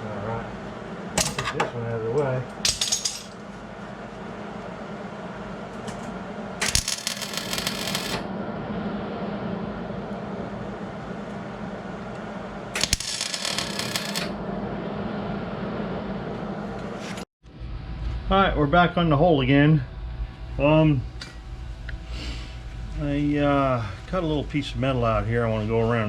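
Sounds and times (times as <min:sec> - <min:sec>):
steady low hum: 0:00.0 - 0:26.0
arc welding crackle: 0:06.6 - 0:08.3, 0:12.7 - 0:14.4, 0:22.6 - 0:26.0.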